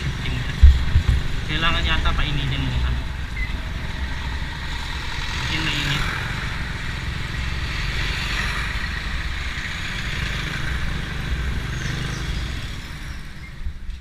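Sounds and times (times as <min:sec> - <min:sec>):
wind noise: 0:00.0 - 0:01.5
motorcycle engine running: 0:00.0 - 0:13.9
road noise: 0:00.0 - 0:14.0.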